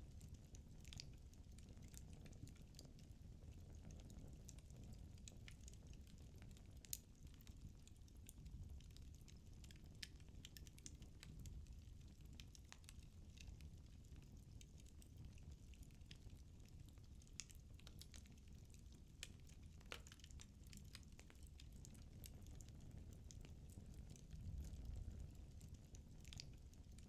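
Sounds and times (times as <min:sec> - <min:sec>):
low rumble of flames: 0:00.0 - 0:27.0
firewood crackling: 0:06.8 - 0:27.0.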